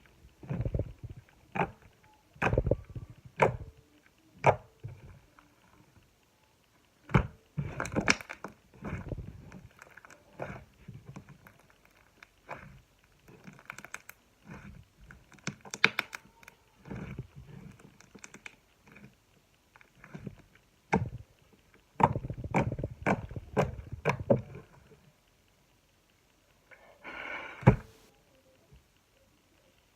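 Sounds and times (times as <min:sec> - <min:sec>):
slime squelching: 0:00.0 - 0:03.7, 0:07.1 - 0:19.2, 0:19.8 - 0:25.0.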